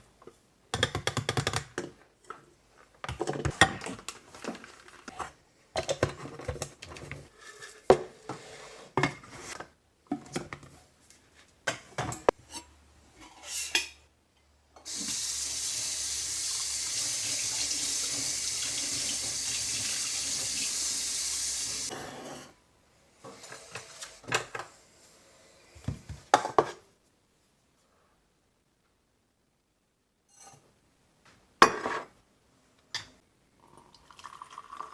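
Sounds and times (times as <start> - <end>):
water running from tap: 14.9 - 21.9.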